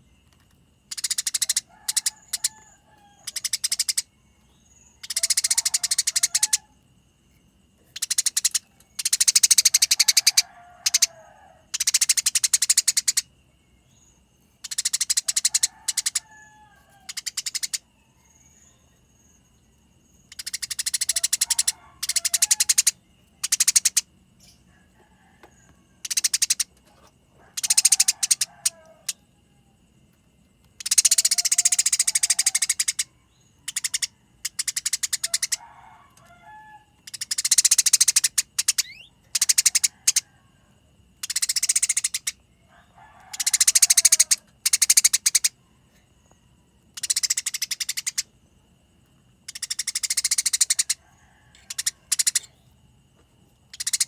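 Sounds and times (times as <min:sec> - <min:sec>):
sparrows rattling chatter: 0:00.0 - 0:06.7, 0:07.8 - 0:13.3, 0:14.0 - 0:18.8, 0:20.2 - 0:24.7, 0:26.0 - 0:29.2, 0:30.8 - 0:40.2, 0:43.2 - 0:45.6, 0:49.5 - 0:52.6, 0:53.7 - 0:54.0.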